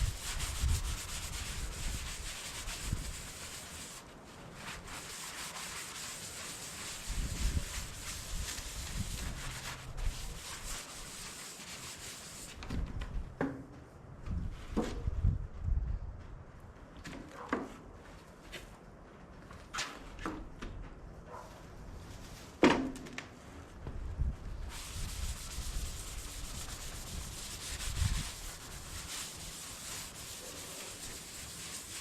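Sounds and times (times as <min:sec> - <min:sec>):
steady hiss: 0:24.6 - 0:32.0.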